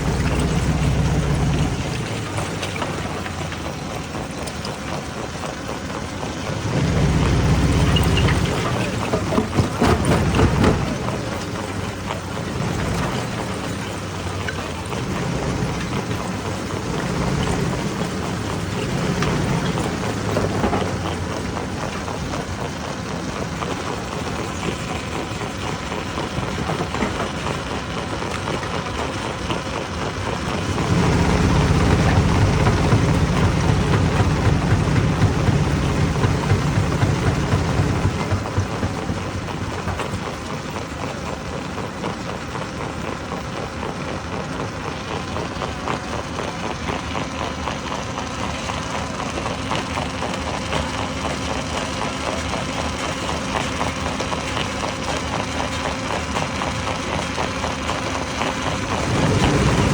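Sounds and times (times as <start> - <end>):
stone crusher machine drone: 0.0 - 43.3, 43.9 - 59.9
low rumble: 30.6 - 39.8.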